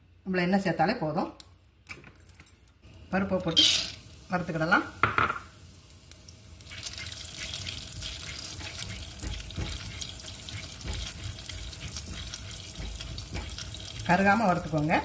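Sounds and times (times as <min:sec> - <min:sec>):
food sizzling in oil: 0:02.9 - 0:15.0.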